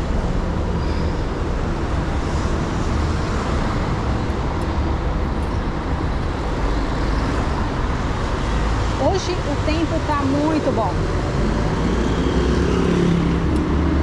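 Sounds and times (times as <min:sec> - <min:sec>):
passing vehicles: 0:00.0 - 0:14.0.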